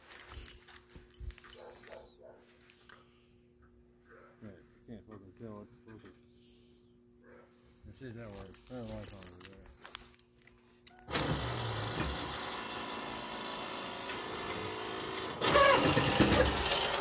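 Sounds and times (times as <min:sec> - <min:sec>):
car engine starting and idling: 0:11.1 - 0:17.0.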